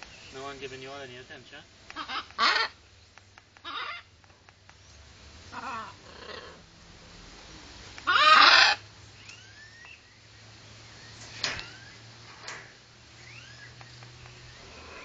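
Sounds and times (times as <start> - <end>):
parrot calls: 1.9 - 2.8, 3.6 - 4.1, 5.5 - 6.6, 8.0 - 10.0
rising whistles: 9.2 - 12.2, 13.1 - 15.0.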